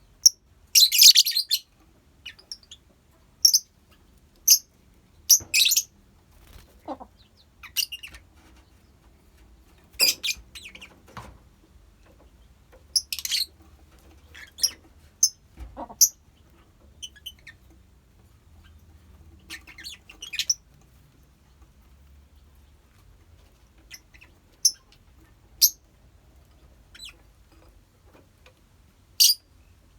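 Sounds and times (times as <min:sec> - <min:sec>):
lovebirds chirping and squawking: 0:00.2 - 0:09.0, 0:09.8 - 0:11.2, 0:12.4 - 0:17.8, 0:18.5 - 0:20.7, 0:23.4 - 0:25.8, 0:26.7 - 0:27.3, 0:29.2 - 0:29.7.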